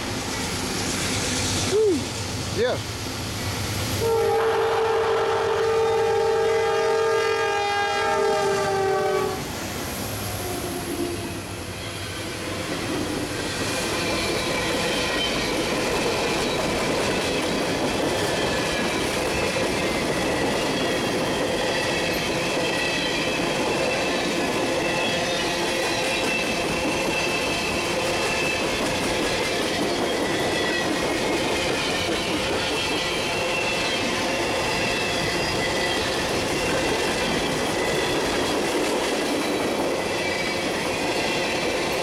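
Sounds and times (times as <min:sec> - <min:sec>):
train wheels rumbling on rail: 0:00.0 - 0:42.0
locomotive horn blast: 0:04.0 - 0:09.4
faint high wheel squeal: 0:10.6 - 0:12.4, 0:19.3 - 0:38.2.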